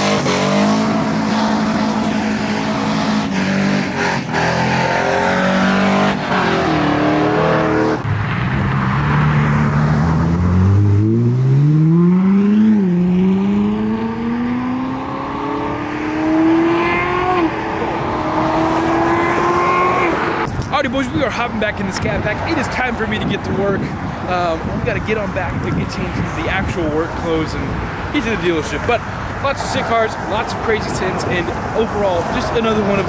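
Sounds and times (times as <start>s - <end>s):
car engine accelerating hard: 0.0s - 20.6s.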